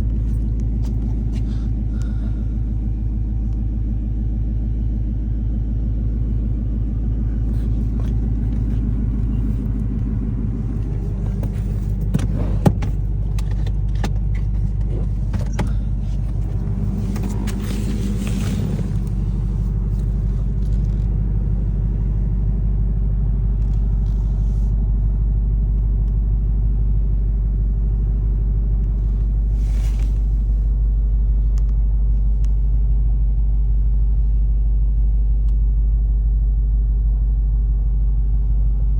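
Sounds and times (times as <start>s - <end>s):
vehicle engine idling: 0.0s - 38.9s.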